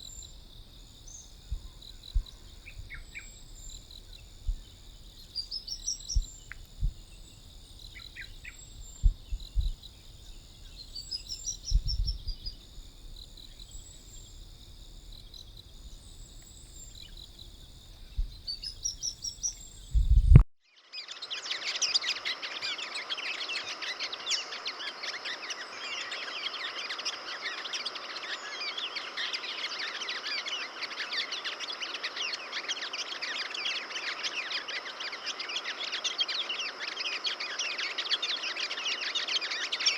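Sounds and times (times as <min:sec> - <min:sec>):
high insect drone: 0:00.0 - 0:19.9, 0:22.5 - 0:39.9
sunbird chirping: 0:00.0 - 0:20.4, 0:21.0 - 0:39.9
low thumps: 0:08.9 - 0:09.8, 0:19.9 - 0:20.4
many birds chattering: 0:21.3 - 0:39.9.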